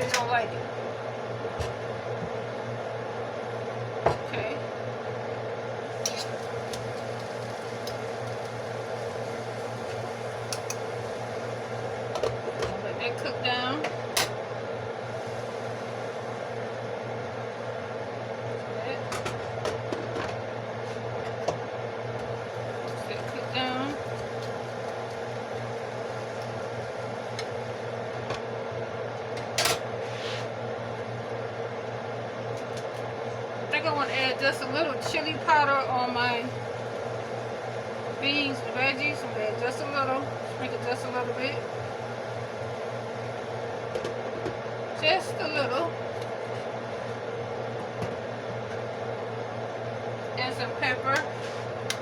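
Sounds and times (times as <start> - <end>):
constant low hum: 0.0 - 52.0
vegetables sizzling in a pan: 5.1 - 19.9, 21.8 - 31.5, 33.7 - 43.9.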